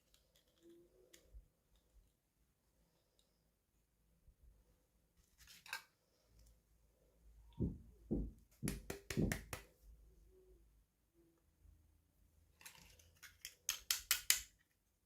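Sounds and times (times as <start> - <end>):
soft knocks: 7.6 - 9.5.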